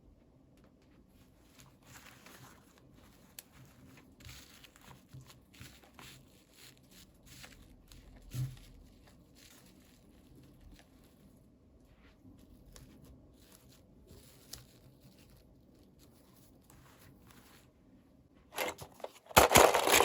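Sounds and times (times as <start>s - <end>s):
taps and rustles of handling: 0.2s - 20.0s
packaging crinkling and tearing: 1.4s - 11.2s, 18.6s - 20.0s.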